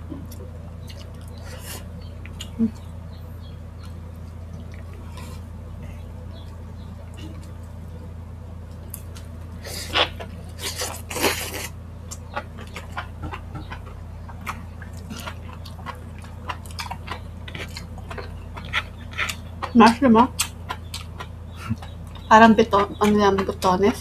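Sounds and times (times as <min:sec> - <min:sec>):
steady low hum: 0:00.0 - 0:24.0
wet chewing and mouth clicks: 0:00.2 - 0:02.9, 0:08.7 - 0:24.0.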